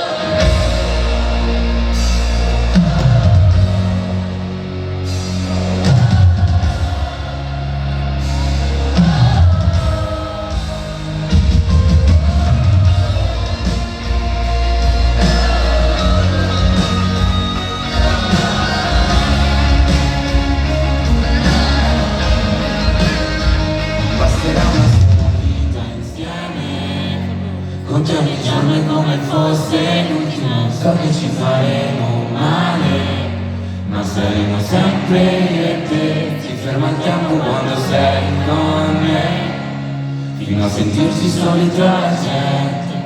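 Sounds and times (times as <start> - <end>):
heavy bass line: 0.0 - 27.8
drums: 0.0 - 28.8
live pop-rock band music: 0.0 - 43.0
person singing: 5.5 - 43.0.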